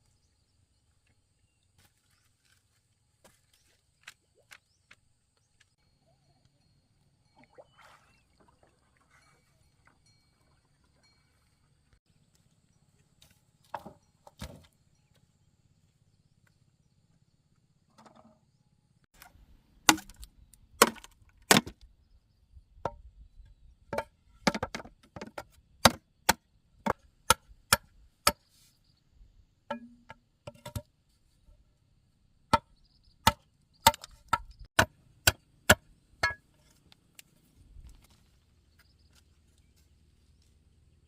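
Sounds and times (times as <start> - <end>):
blade chopping into wood: 19.9 - 21.8.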